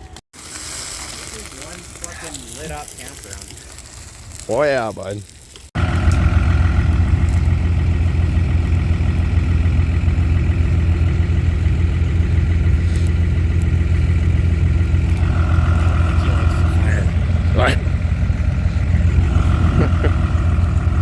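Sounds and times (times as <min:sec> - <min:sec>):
truck engine idling: 0:05.8 - 0:21.0.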